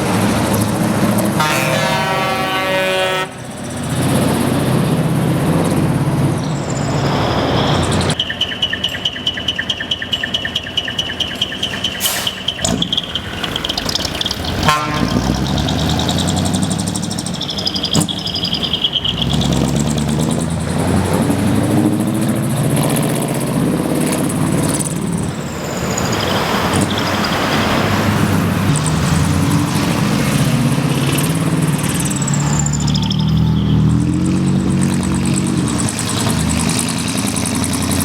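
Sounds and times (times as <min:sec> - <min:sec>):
truck diesel engine running: 0:00.0 - 0:38.0
high steady whistle: 0:06.8 - 0:14.3.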